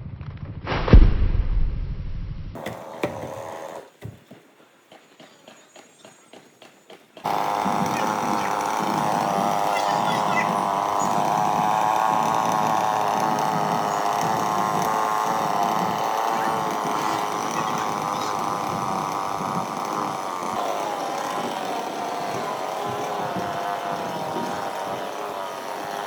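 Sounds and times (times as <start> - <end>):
chainsaw engine running: 2.6 - 4.2, 7.2 - 26.0.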